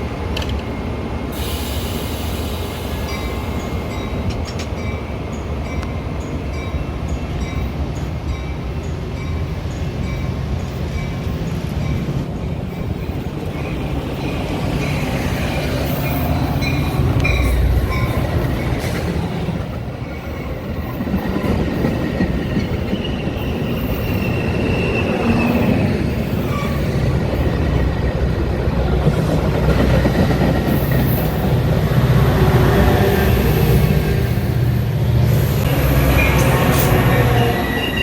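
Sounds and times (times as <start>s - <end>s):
train rumbling on rails: 0.0s - 38.0s
train wheel squeals: 9.2s - 28.1s, 35.6s - 38.0s.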